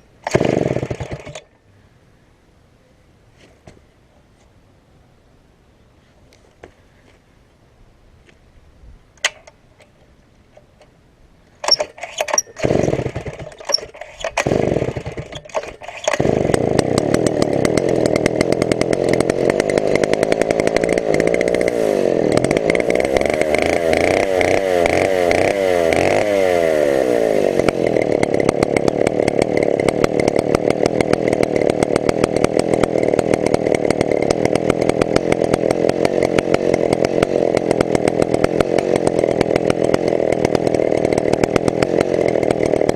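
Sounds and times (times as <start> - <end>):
chainsaw sputtering and running: 0.2 - 1.5, 11.6 - 42.9.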